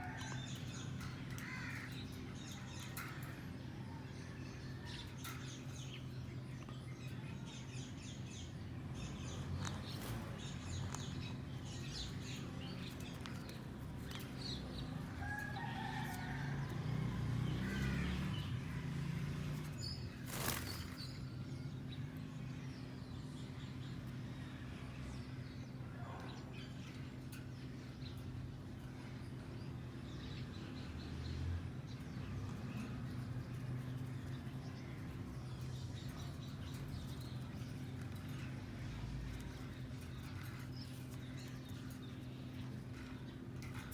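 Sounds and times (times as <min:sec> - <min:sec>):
parrots tapping and clicking in cage: 0:00.0 - 0:03.6, 0:09.4 - 0:21.2, 0:32.4 - 0:43.9.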